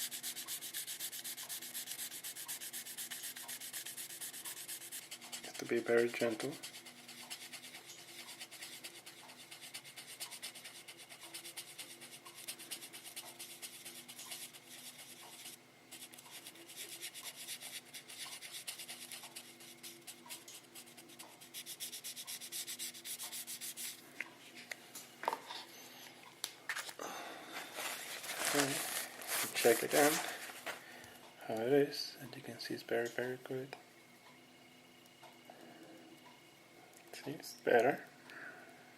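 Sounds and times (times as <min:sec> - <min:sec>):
sandpaper rasping on plastic: 0:00.0 - 0:24.0, 0:27.8 - 0:30.5.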